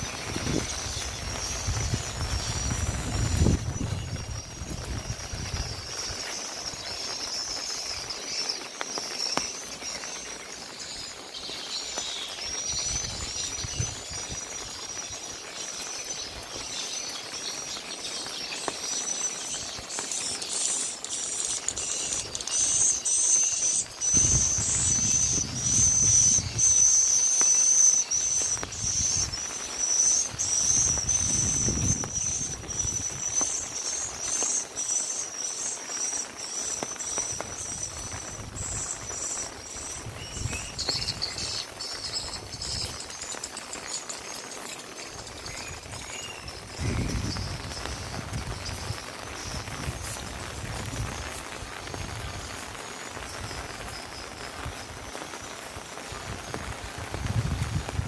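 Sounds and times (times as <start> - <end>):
faint rain hiss: 0.0 - 58.0
insects trilling: 0.0 - 58.0.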